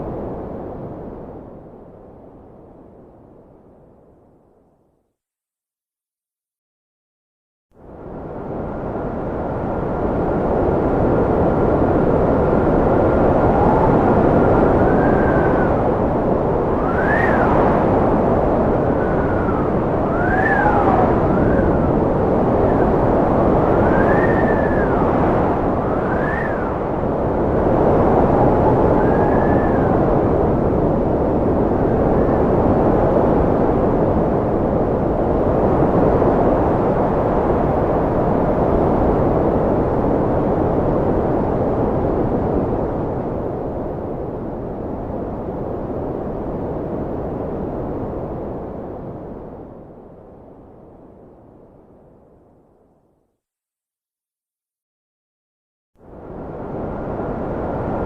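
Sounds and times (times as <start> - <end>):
high wind whistle: 8.1 - 50.0, 56.2 - 58.0
wind rushing: 8.2 - 50.0.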